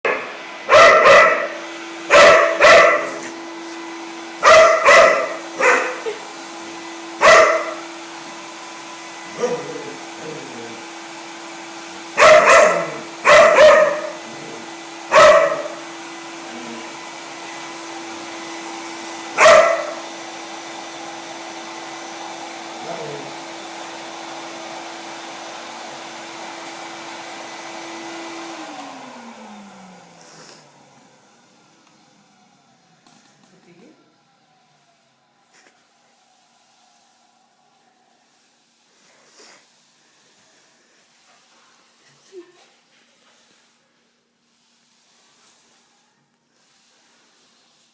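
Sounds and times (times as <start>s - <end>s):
dog barking: 0.0s - 3.4s, 4.4s - 6.2s, 7.2s - 7.8s, 9.3s - 9.9s, 12.2s - 15.8s, 19.4s - 20.0s
vacuum cleaner motor hum: 0.1s - 42.4s.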